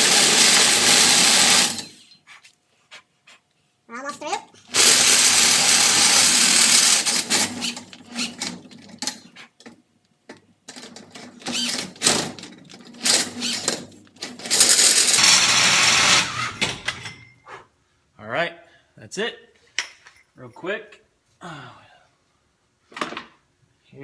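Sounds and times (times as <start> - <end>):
power drill hole saw cutting metal: 0.0 - 2.0, 4.7 - 9.2, 11.4 - 16.7.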